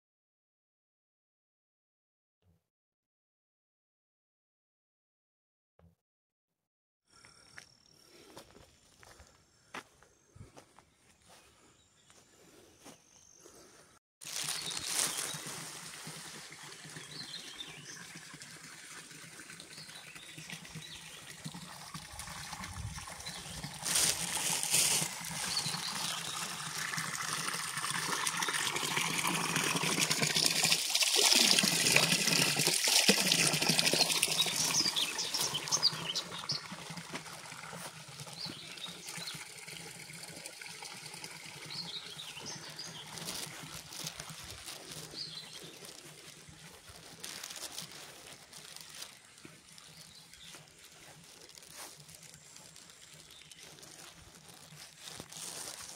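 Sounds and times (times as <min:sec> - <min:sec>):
water trickling: 0:14.3 - 0:55.9.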